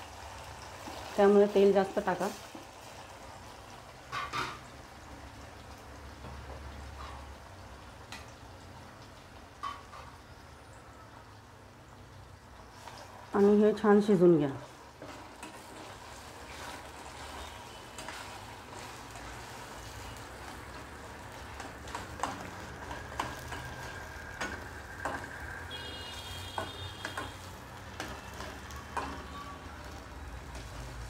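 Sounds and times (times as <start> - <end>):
paste sizzling in hot oil: 0.0 - 8.8, 12.0 - 31.0
metal spatula scraping pan: 14.9 - 20.6.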